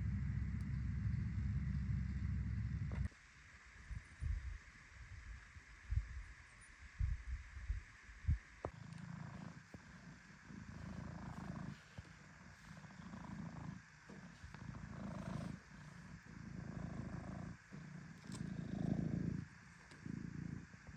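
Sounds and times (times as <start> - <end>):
low rumble: 0.0 - 3.1.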